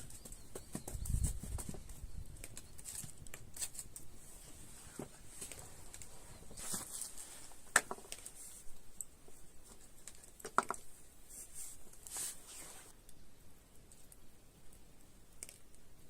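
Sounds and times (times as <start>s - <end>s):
handling rustles and clicks: 0.0s - 10.9s.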